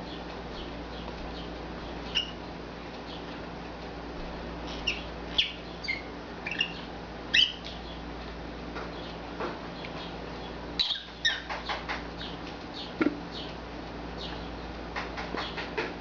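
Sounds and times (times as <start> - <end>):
bird chirping: 0.0 - 2.4, 4.7 - 8.0, 9.8 - 13.6, 14.2 - 14.6
steady low hum: 0.0 - 16.0.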